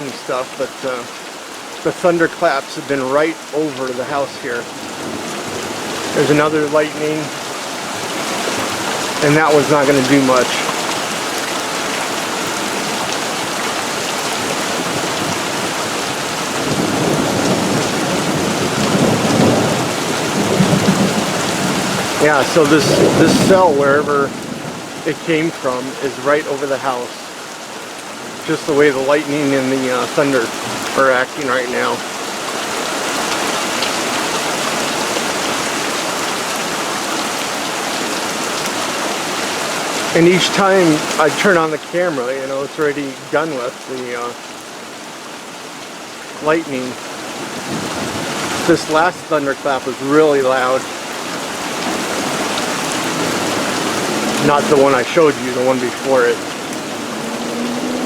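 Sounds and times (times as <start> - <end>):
heavy rain pouring: 0.0 - 58.0
thunder rumbling: 16.6 - 26.3, 51.9 - 58.0.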